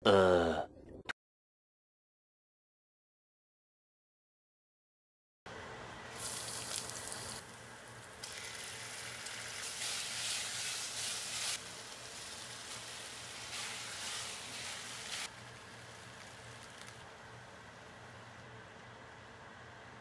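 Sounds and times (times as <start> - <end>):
food sizzling in a pot: 6.1 - 17.1
spatula stirring: 9.3 - 17.0.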